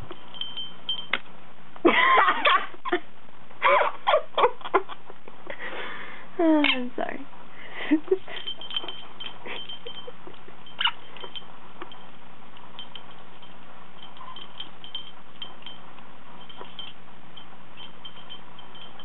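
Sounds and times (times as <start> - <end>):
small bell tinkling: 0.0 - 1.2, 8.1 - 19.0
sharp clink: 8.3 - 12.1.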